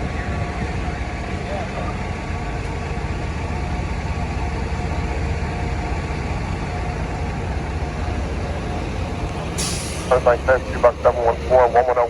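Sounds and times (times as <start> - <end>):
diesel engine idling: 0.1 - 12.0.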